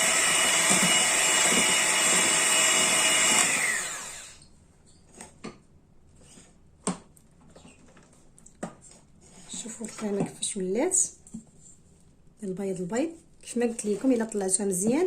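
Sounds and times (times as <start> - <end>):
electric mixer whirring: 0.0 - 4.4.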